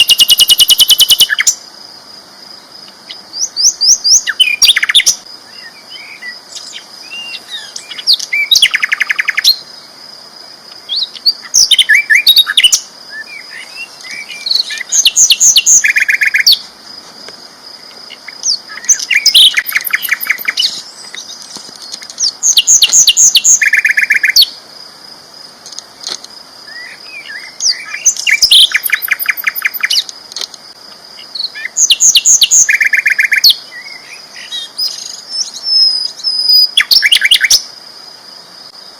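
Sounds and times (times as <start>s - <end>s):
flycatcher trilled song: 0.0s - 1.6s, 10.8s - 16.6s, 17.9s - 24.6s, 26.7s - 30.1s.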